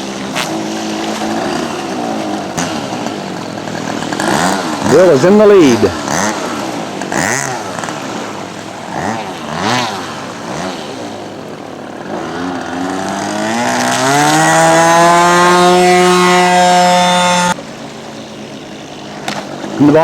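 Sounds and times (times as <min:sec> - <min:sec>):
model plane engine running: 0:00.0 - 0:20.0.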